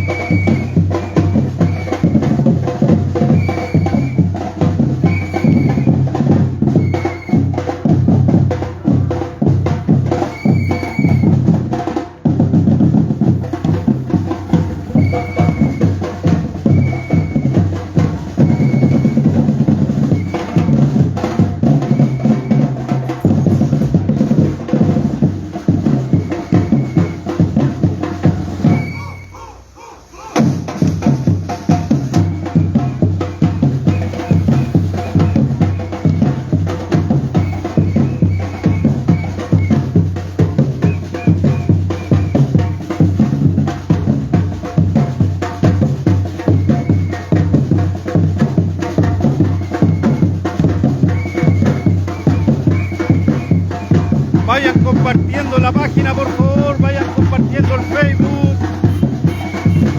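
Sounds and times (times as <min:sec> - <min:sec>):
whistle blasts: 0:00.0 - 0:02.5, 0:03.2 - 0:04.4, 0:05.0 - 0:06.1, 0:06.7 - 0:07.6, 0:10.2 - 0:11.4, 0:14.8 - 0:16.0, 0:16.6 - 0:17.7, 0:18.4 - 0:20.9, 0:21.8 - 0:22.8, 0:26.0 - 0:27.6, 0:28.6 - 0:30.5, 0:32.1 - 0:36.6, 0:37.2 - 0:40.0, 0:40.8 - 0:42.8, 0:46.4 - 0:47.6, 0:49.2 - 0:59.9
drum group playing: 0:00.0 - 0:59.9.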